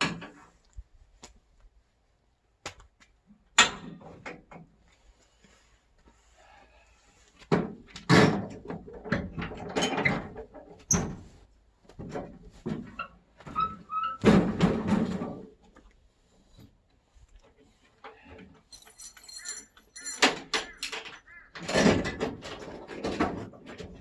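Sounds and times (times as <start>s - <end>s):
heavy clunks and knocks: 7.5s - 11.3s, 14.2s - 15.5s.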